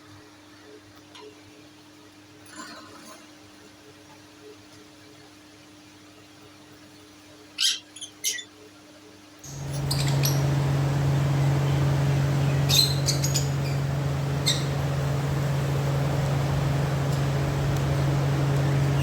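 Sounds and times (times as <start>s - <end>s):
low hum with hiss: 6.2s - 19.0s
small birds chirping: 9.4s - 19.0s.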